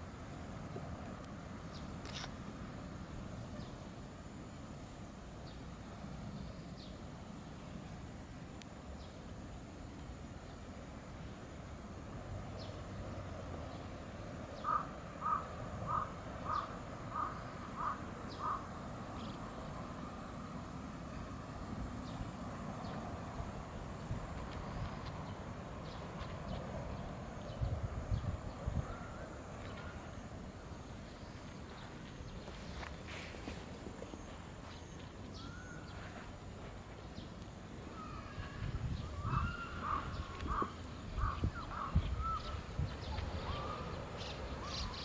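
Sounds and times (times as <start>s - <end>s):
outdoor background noise: 0.0s - 45.0s
bird calling: 14.6s - 19.4s, 34.1s - 36.3s, 37.9s - 45.0s.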